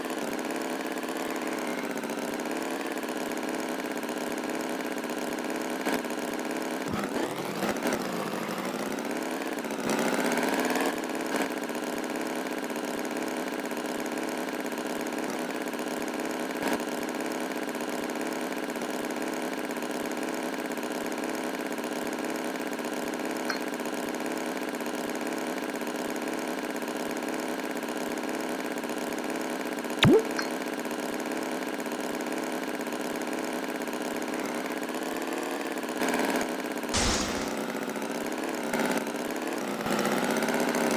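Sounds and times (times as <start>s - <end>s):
sharp click: 37.0s - 37.7s.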